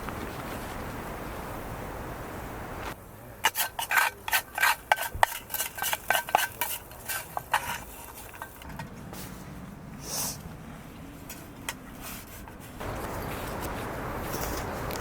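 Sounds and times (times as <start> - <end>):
metal utensil scraping a pan: 3.4 - 8.8.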